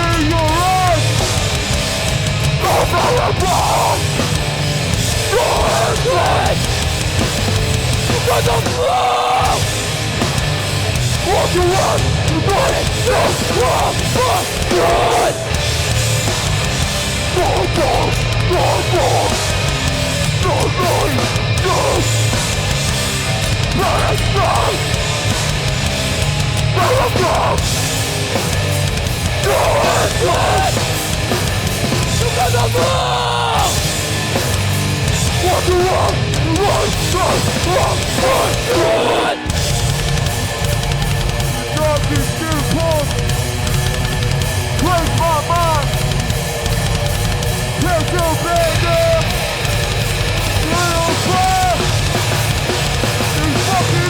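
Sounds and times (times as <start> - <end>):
bass guitar: 0.0 - 54.0
distorted guitars: 0.0 - 54.0
drums: 0.0 - 54.0
person shouting vocals: 2.6 - 4.1, 5.3 - 6.6, 8.2 - 9.7, 11.2 - 15.5, 17.3 - 19.4, 20.4 - 22.2, 23.7 - 24.9, 26.8 - 27.6, 29.4 - 30.8, 32.2 - 33.8, 35.4 - 39.5, 44.8 - 46.0, 47.8 - 49.3, 50.6 - 51.9, 53.4 - 54.0.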